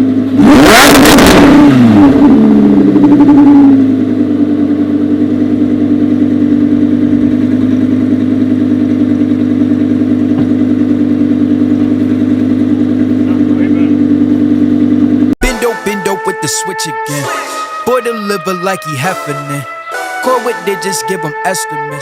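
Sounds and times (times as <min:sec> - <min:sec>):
sports car engine revving and idling: 0:00.0 - 0:15.4.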